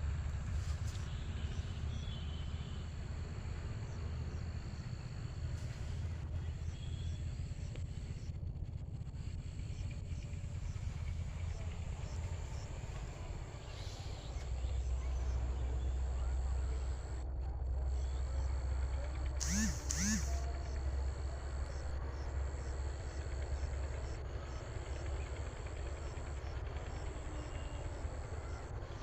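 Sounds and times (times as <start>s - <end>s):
short pitched call: 19.4s - 20.4s
insects trilling: 19.4s - 29.0s.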